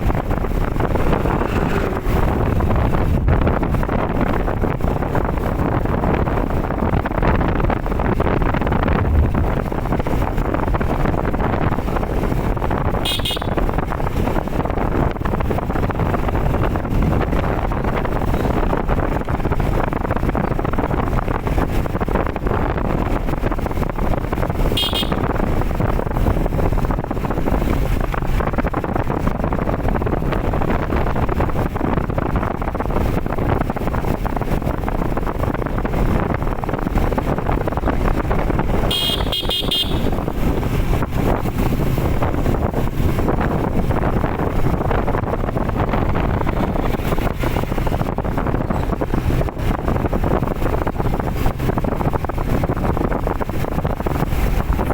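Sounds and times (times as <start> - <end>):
wind and road noise: 0.0 - 54.9
vehicle horn beeps: 13.0 - 13.6, 24.7 - 25.3, 38.8 - 40.2.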